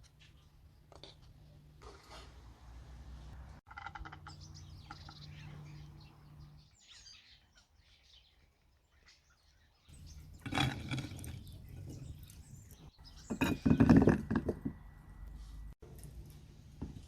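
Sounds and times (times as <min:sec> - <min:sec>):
kitchenware clinking and knocking: 0:10.1 - 0:14.8.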